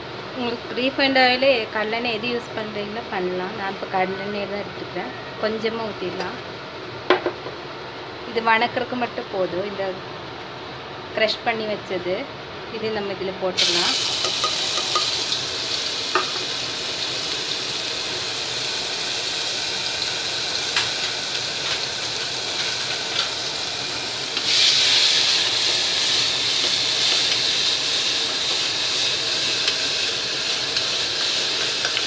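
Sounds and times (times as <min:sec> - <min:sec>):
onions sizzling in hot oil: 0:13.6 - 0:32.0.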